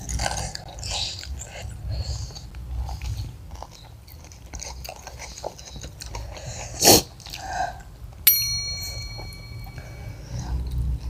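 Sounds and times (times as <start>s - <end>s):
chewing crispy food: 0.0s - 8.2s.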